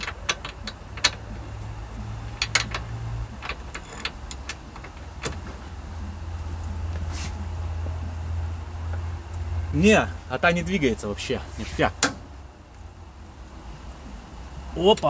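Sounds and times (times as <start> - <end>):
wrench clicking on a bolt: 0.0 - 5.4
steady low hum: 0.0 - 15.0.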